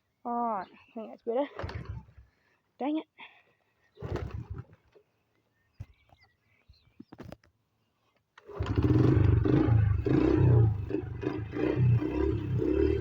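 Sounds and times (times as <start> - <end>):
dirt bike engine starting unevenly: 1.5 - 2.2, 8.4 - 13.0.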